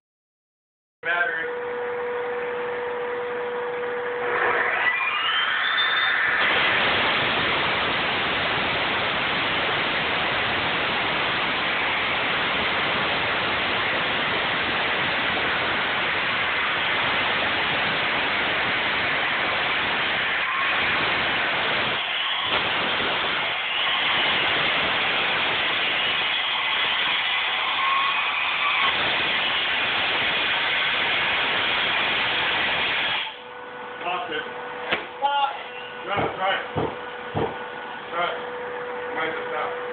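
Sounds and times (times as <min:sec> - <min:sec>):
power saw cutting: 0:03.8 - 0:33.4.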